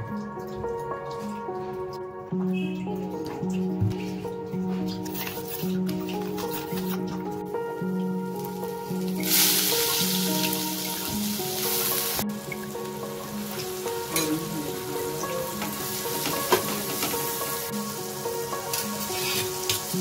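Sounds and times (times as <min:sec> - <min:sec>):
soft background music: 0:00.0 - 0:20.0
onion and tomato sizzling in oil: 0:08.2 - 0:20.0.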